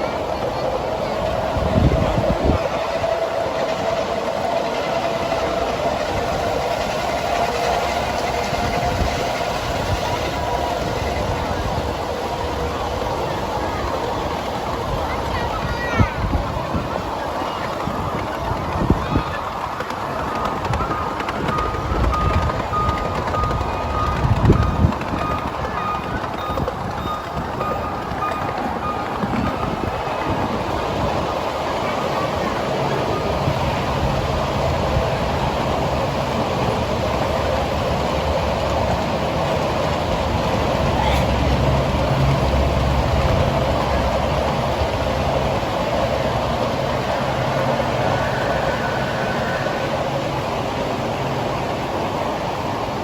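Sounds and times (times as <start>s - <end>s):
miniature train mechanical hum: 0.0s - 53.0s
train wheels rumbling: 0.0s - 53.0s.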